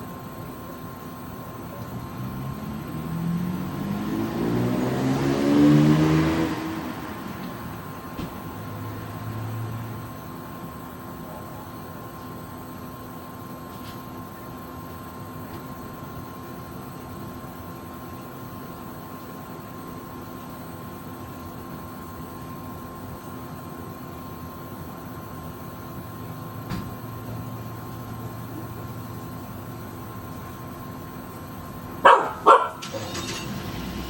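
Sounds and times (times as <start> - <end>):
dog barking: 11.2 - 11.7, 32.0 - 33.0.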